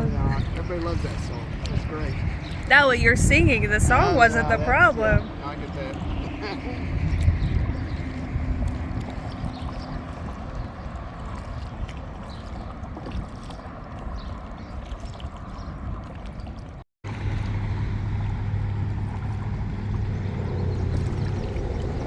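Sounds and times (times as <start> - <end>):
steady low drone: 0.0 - 11.8, 17.1 - 22.0
kayak paddle splashes and drips: 0.0 - 22.0
wind rumbling on microphone: 0.0 - 22.0.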